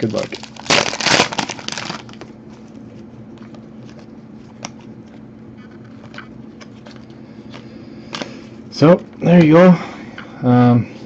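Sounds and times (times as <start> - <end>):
card pack rustling: 0.0 - 8.4.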